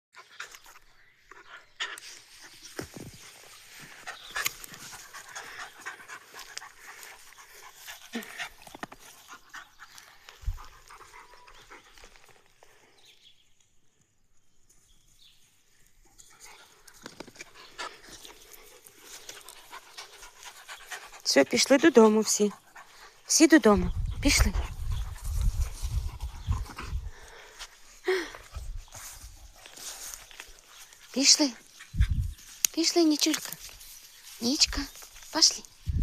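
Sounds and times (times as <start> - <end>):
dog panting: 3.9 - 12.3, 17.4 - 27.6
rustling: 25.1 - 36.0.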